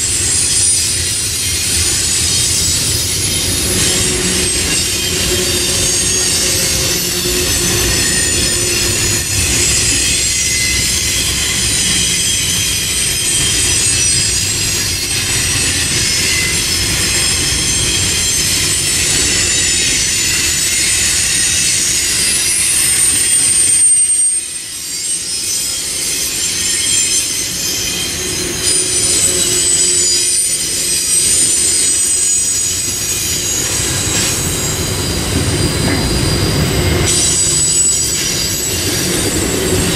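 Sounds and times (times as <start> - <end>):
train wheels squealing: 0.0 - 39.9
wheels rumbling on rail: 0.0 - 39.9.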